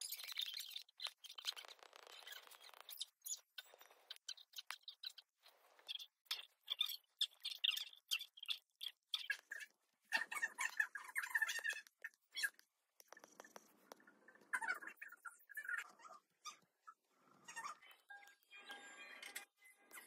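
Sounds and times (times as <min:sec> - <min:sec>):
faint bird chirps: 0:00.0 - 0:20.0.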